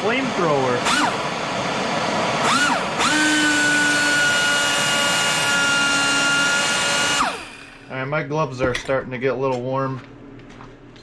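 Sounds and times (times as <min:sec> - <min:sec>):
angle grinder whine: 0:00.0 - 0:08.0.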